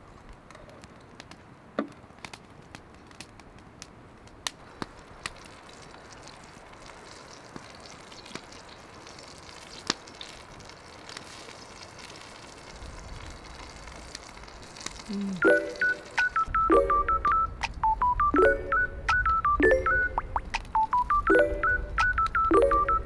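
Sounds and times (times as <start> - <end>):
campfire crackling: 0.0 - 23.0
sharp pops of fire: 0.2 - 15.1, 20.3 - 21.3.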